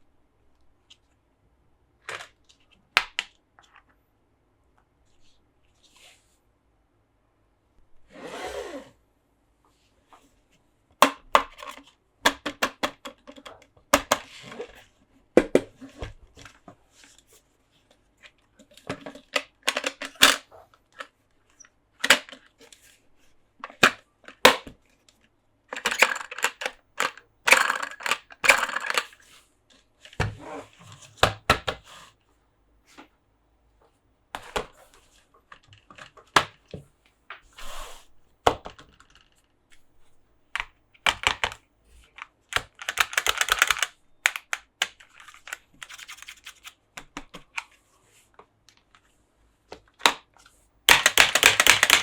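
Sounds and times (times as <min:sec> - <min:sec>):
plastic toys clicking and tapping: 0:11.0 - 0:14.3, 0:18.6 - 0:21.1, 0:22.0 - 0:22.5, 0:25.7 - 0:29.2, 0:40.6 - 0:47.6, 0:50.9 - 0:52.0.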